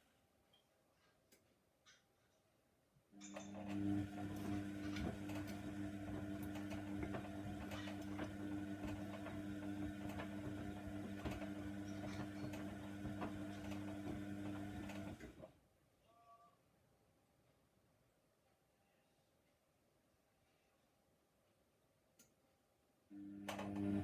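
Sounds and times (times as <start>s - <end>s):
washer dryer humming: 3.2s - 15.5s, 23.2s - 24.0s.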